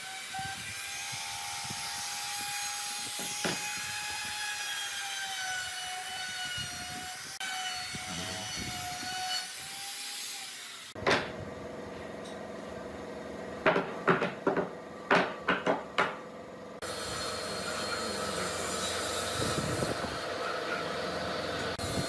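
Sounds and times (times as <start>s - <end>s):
electric power tool whining: 16.8s - 22.0s.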